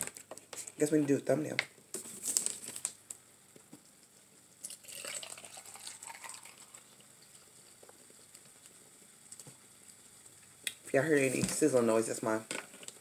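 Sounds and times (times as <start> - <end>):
food sizzling in a pan: 4.6 - 12.3.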